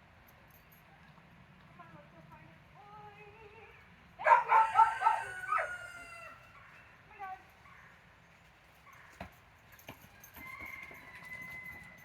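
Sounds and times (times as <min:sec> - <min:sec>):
rooster crowing: 0:04.2 - 0:06.4, 0:10.2 - 0:12.0.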